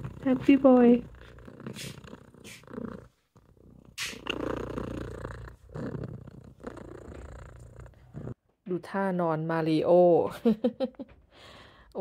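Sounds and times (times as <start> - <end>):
cat purring: 0.0 - 8.4.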